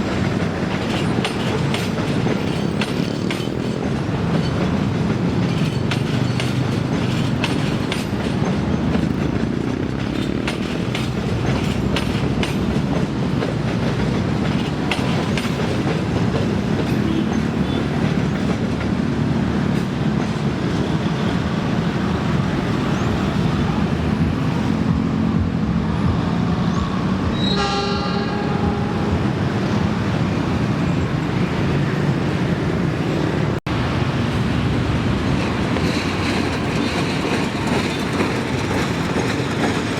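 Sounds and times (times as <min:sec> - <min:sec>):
wheels clacking over rail joints: 0:00.0 - 0:22.4, 0:33.9 - 0:39.9
train rumbling past: 0:00.0 - 0:39.9
locomotive horn blast: 0:27.3 - 0:29.4.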